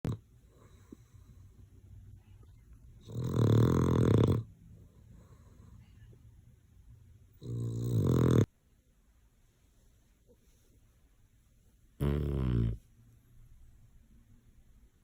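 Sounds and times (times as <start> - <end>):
dog snoring: 0.0 - 1.4, 3.0 - 4.5, 7.3 - 8.5, 12.0 - 12.9.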